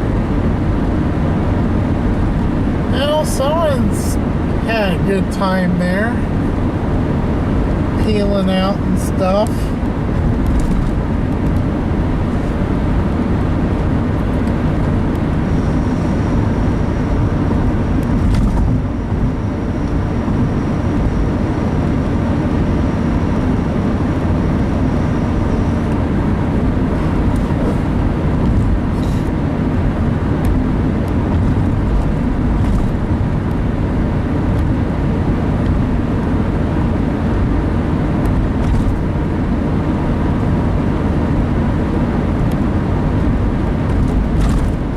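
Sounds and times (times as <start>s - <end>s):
car road and engine noise: 0.0s - 44.9s.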